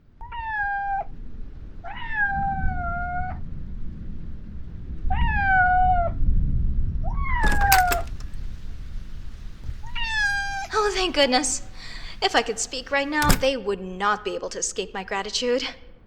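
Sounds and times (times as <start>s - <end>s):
sharp clicks: 7.5s - 13.6s.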